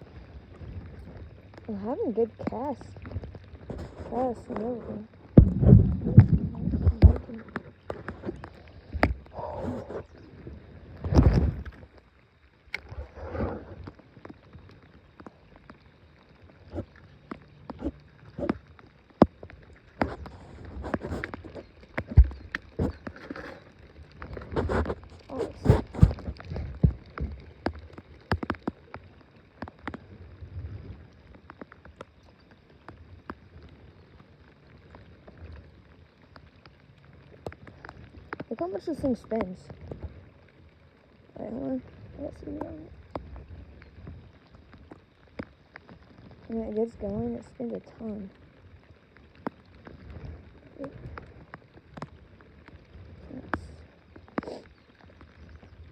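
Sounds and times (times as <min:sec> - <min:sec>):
raindrops ticking: 0:00.0 - 0:55.9
rustling: 0:19.4 - 0:28.8.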